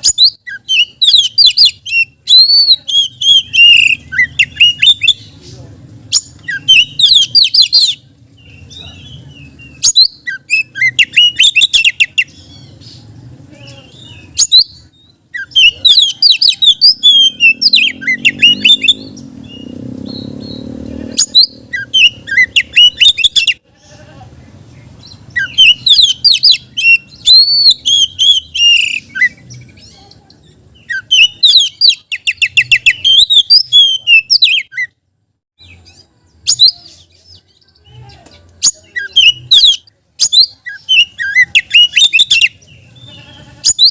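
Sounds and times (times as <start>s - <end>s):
bird singing high whistles: 25.4s - 29.4s.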